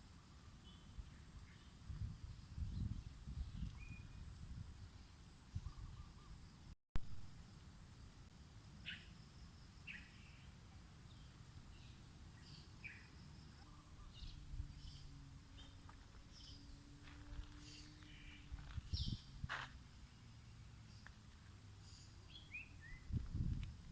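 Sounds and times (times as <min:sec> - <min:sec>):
wind on microphone: 0:01.8 - 0:06.3, 0:18.4 - 0:19.6, 0:22.9 - 0:23.9.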